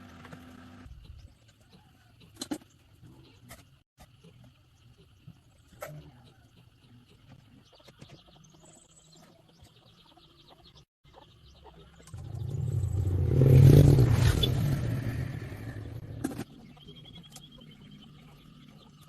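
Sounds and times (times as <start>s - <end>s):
vehicle passing by: 12.1s - 16.4s.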